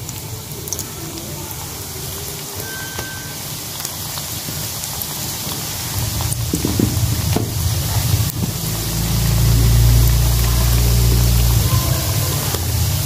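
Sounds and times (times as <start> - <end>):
dough sizzling in oil: 0.0 - 13.0
low hum: 8.1 - 11.8.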